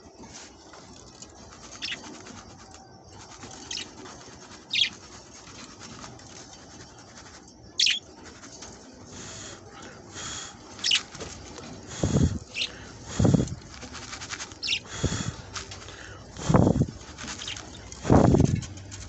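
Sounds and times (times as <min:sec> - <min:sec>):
budgerigars chirping: 0:01.8 - 0:02.1, 0:03.5 - 0:04.0, 0:04.7 - 0:05.0, 0:07.8 - 0:08.2, 0:09.1 - 0:09.6, 0:10.2 - 0:18.7.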